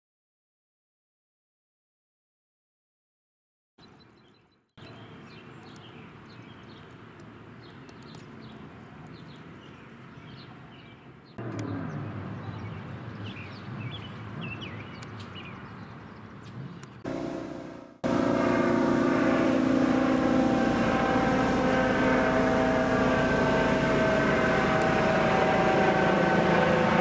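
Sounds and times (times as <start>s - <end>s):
small birds chirping: 3.8s - 17.1s
helicopter rumble: 11.4s - 27.0s.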